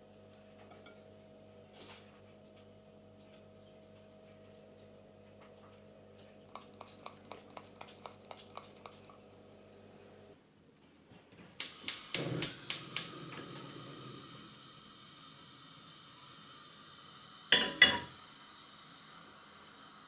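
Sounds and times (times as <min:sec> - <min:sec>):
faint steady hiss: 0:06.2 - 0:20.0
sharp quick clicks: 0:11.6 - 0:13.1.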